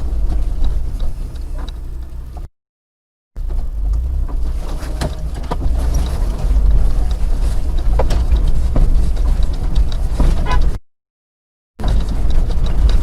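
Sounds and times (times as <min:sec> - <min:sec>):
road and engine rumble in car: 0:00.0 - 0:02.5, 0:03.4 - 0:10.8, 0:11.8 - 0:13.0
small rattles and clicks: 0:03.4 - 0:10.5.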